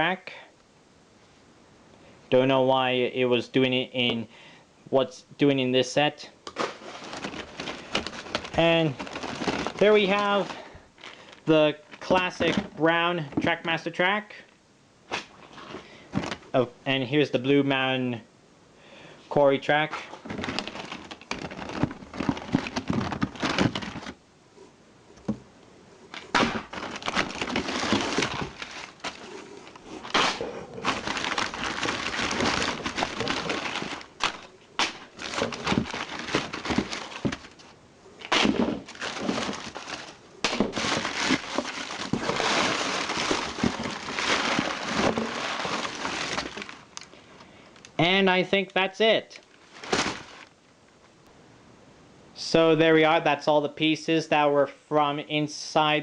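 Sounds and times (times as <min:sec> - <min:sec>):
paper and plastic crinkling: 0:06.5 - 0:13.7, 0:15.1 - 0:16.5, 0:20.0 - 0:24.2, 0:26.1 - 0:47.2, 0:49.4 - 0:50.6.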